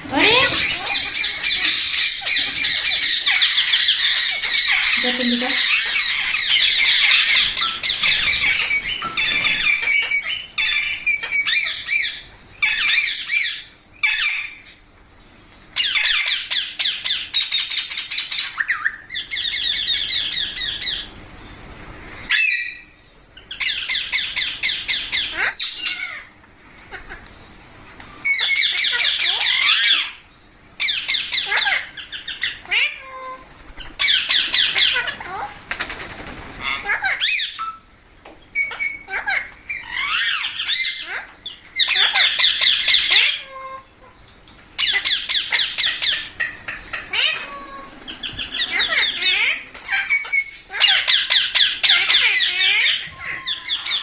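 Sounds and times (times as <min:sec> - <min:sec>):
parakeets squawking and chattering: 0:00.0 - 0:14.8, 0:23.5 - 0:26.3, 0:28.2 - 0:30.2, 0:30.8 - 0:37.8, 0:38.5 - 0:54.0.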